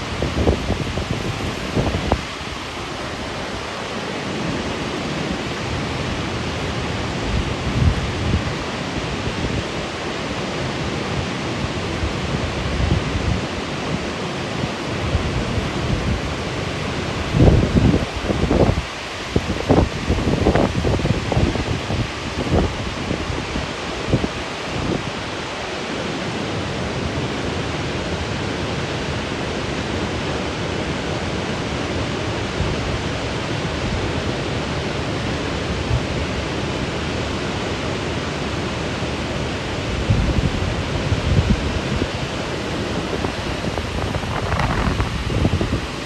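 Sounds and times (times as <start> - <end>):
wind bumps on microphone: 0.0 - 3.8, 7.0 - 9.8, 15.0 - 25.2, 39.8 - 46.0
waterfall rushing into pool: 0.0 - 46.0.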